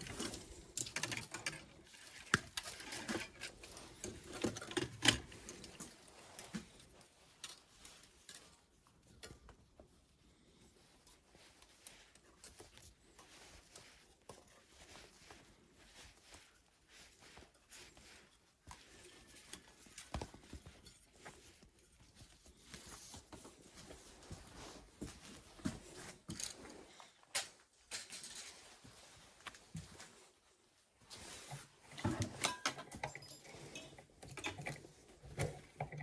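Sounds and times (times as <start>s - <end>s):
tools clicking and tapping: 0.0s - 9.6s, 31.9s - 36.0s.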